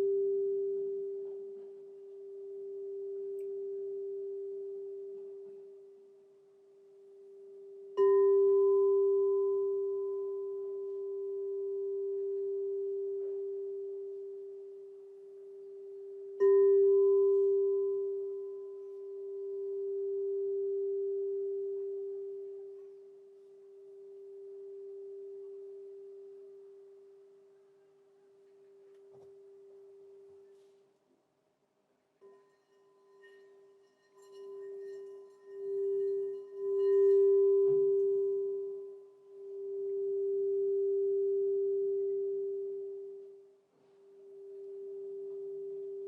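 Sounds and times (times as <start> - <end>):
crystal singing bowl ringing: 0.0 - 6.3, 7.0 - 27.4, 32.2 - 46.0.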